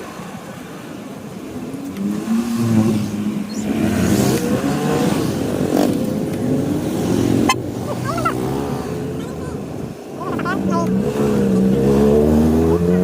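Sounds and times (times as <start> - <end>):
road noise: 0.0 - 13.0
motorcycle engine accelerating: 10.6 - 13.0.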